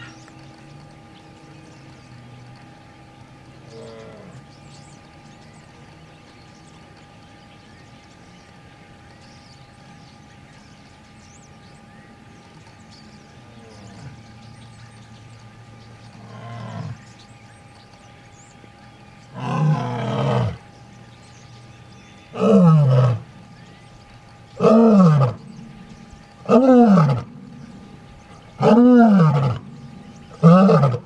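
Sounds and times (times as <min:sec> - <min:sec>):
big cat roaring: 0:16.2 - 0:17.1, 0:19.3 - 0:20.6, 0:22.3 - 0:23.3, 0:24.6 - 0:25.7, 0:26.4 - 0:31.0.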